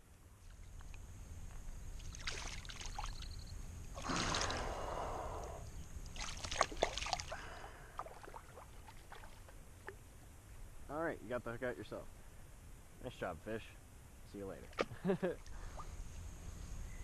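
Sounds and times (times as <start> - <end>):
fish splashing in water: 2.0 - 3.4, 4.0 - 5.0, 6.1 - 10.0.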